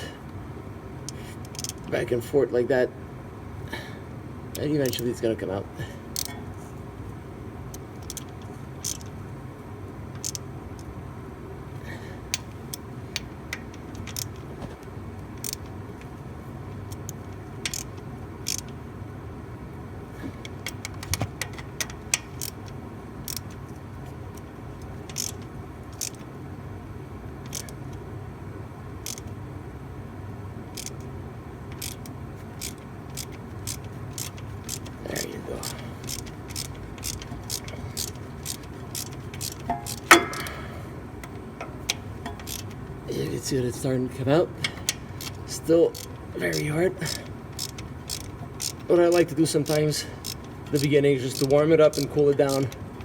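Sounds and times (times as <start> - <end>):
wrench clicking on nut: 1.1 - 1.9, 4.5 - 5.1, 6.1 - 6.5, 7.7 - 9.2, 10.2 - 10.9, 12.3 - 14.5, 15.3 - 16.1, 16.8 - 18.8, 20.4 - 23.6, 24.3 - 26.3, 27.4 - 28.0, 29.0 - 29.4, 30.7 - 31.1, 31.7 - 40.6, 41.2 - 42.8, 44.6 - 53.0.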